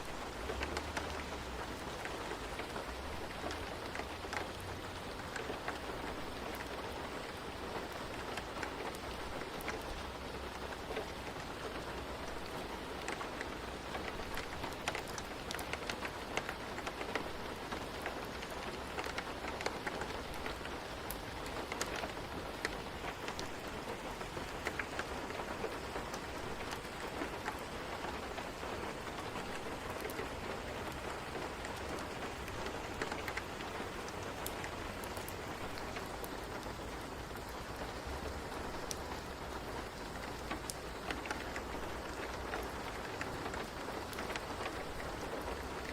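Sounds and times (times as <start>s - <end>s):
rain hissing: 0.0s - 45.9s
small sharp ticks and crackles: 0.0s - 45.9s.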